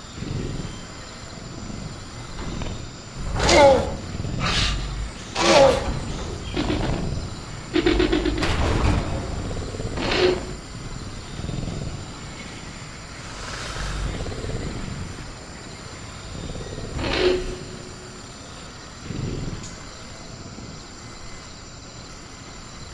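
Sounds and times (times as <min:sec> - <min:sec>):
high insect drone: 0:00.0 - 0:22.9
dinosaur growling calls: 0:00.2 - 0:08.6, 0:13.1 - 0:15.4
fast rattle: 0:02.3 - 0:12.2
sharp clatter: 0:04.5 - 0:11.4.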